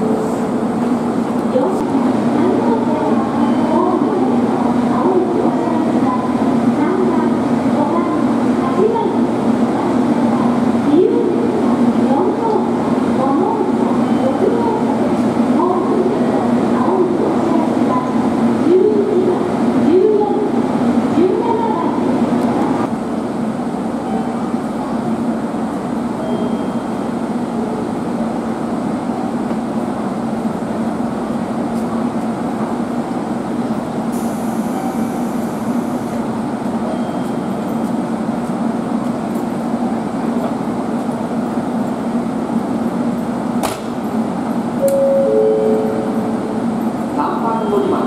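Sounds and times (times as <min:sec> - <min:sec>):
electric train humming: 0:00.0 - 0:48.0
two-pitch tone: 0:44.8 - 0:46.6.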